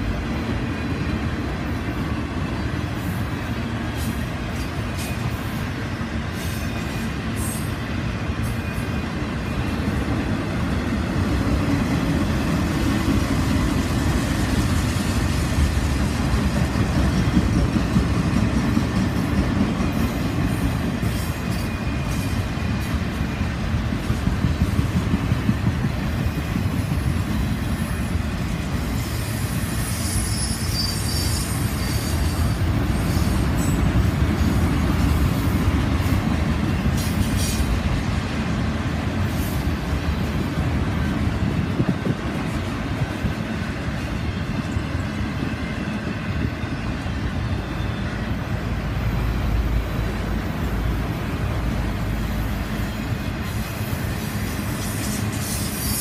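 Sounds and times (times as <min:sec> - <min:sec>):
train wheels rumbling on rails: 0:00.0 - 0:56.0
wheel squeal: 0:29.6 - 0:33.8, 0:54.8 - 0:56.0.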